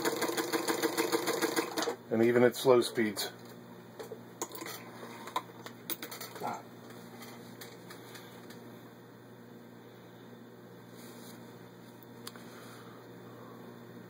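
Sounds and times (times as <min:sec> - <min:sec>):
sewing machine stitching: 0:00.0 - 0:02.0.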